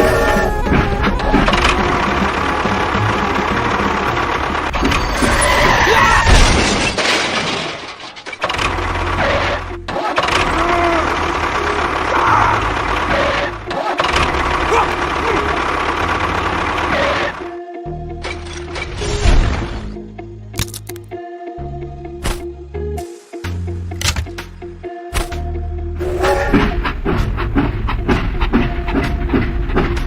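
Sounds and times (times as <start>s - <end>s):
music: 0.0s - 6.4s, 8.4s - 30.0s
engine rumbling: 0.0s - 6.7s, 8.4s - 18.7s
voice-like sounds: 9.9s - 11.2s, 11.8s - 12.7s, 14.7s - 15.6s.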